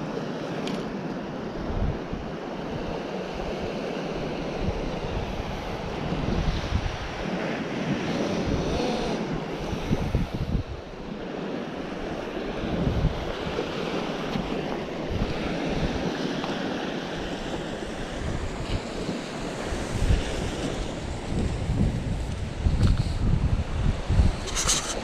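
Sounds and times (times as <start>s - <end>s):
sea waves on rocky shore: 0.0s - 25.0s
wind buffeting microphone: 0.9s - 25.0s.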